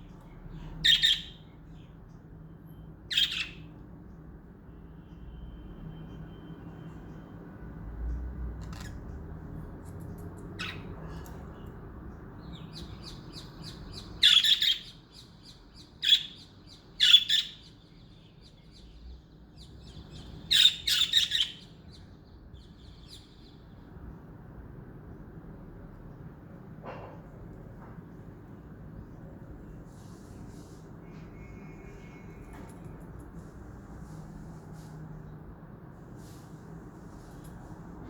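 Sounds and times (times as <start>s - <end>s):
budgerigars chirping: 0.8s - 1.4s, 3.1s - 3.7s, 10.6s - 11.0s, 12.5s - 17.6s, 19.6s - 21.7s.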